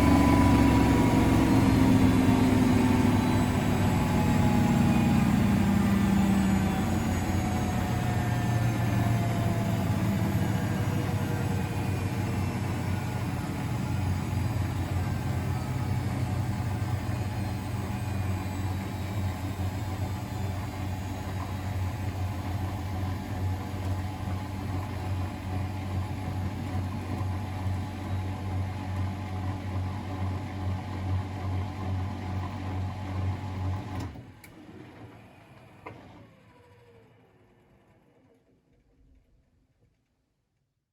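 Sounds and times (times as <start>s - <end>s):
motor whirring down: 0.0s - 29.1s
washing machine humming: 0.0s - 35.8s.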